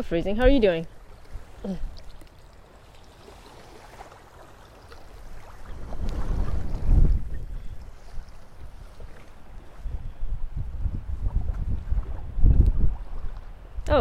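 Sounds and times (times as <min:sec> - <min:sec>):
wind buffeting microphone: 0:05.0 - 0:14.0.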